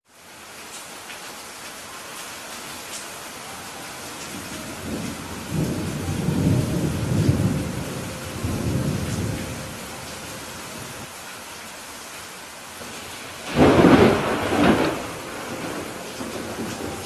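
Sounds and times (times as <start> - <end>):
steady rainfall: 0.0 - 17.0
rolling thunder: 4.3 - 11.1, 12.9 - 17.0.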